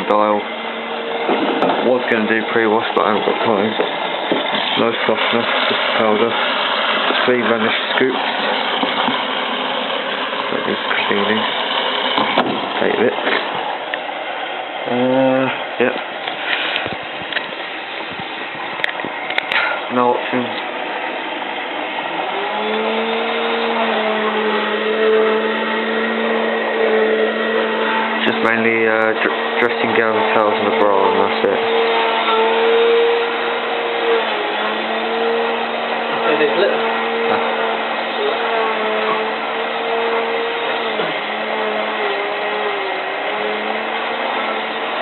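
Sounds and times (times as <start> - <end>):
washing machine hum: 0.0 - 45.0
washing machine water rushing: 0.0 - 45.0.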